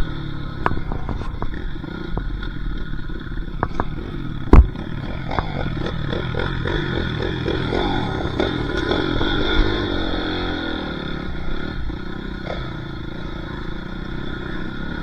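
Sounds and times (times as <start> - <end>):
dirt bike engine revving: 0.0 - 15.0
sharp thump: 3.6 - 5.5
clattering knocks: 3.6 - 5.6.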